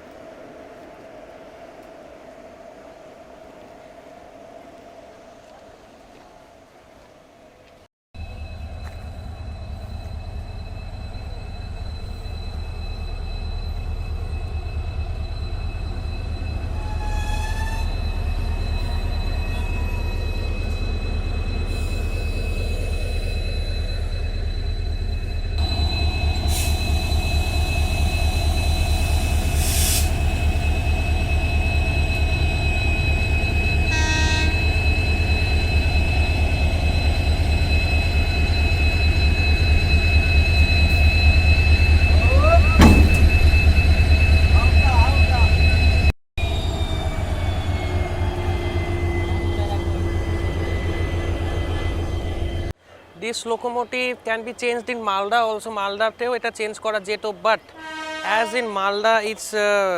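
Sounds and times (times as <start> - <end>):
high whines: 8.2 - 52.8
diesel locomotive engine rumble: 8.2 - 53.0
air hissing: 29.5 - 30.6
horn-like tone: 33.8 - 35.2, 57.7 - 58.8.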